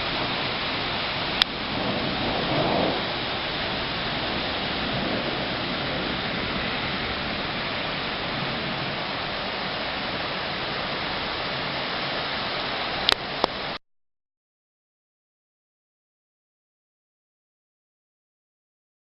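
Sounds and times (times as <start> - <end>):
rain falling: 0.0 - 13.8.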